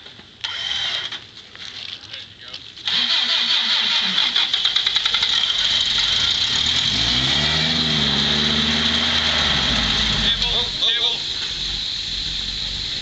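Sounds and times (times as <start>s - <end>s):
vehicle engine revving: 2.9s - 13.0s.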